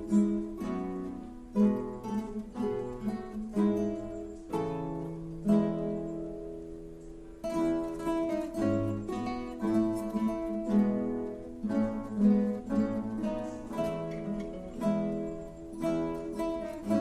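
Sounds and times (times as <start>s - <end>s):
acoustic guitar chords: 0.0s - 17.0s.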